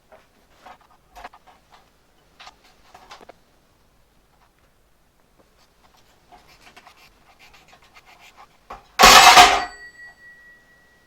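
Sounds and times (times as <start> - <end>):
high metallic ringing: 9.0 - 11.0.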